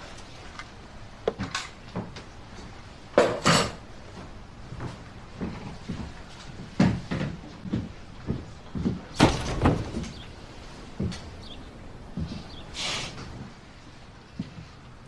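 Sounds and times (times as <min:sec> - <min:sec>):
knocks and thumps: 0:06.7 - 0:11.5.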